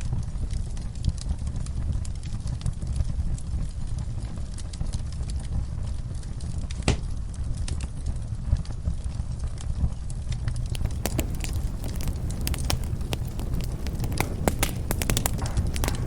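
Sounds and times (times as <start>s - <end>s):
wood fire crackling and popping: 10.6s - 16.0s.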